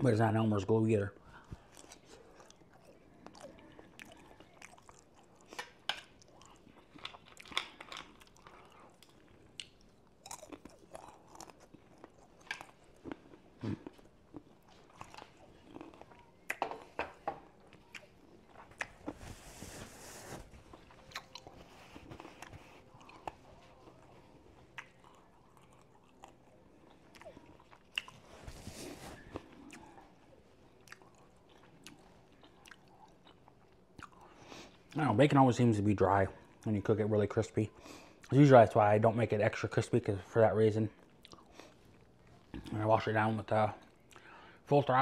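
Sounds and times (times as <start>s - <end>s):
chewing and biting food: 1.4s - 19.3s, 20.6s - 35.0s, 41.0s - 42.7s
food crunches: 1.6s - 17.0s.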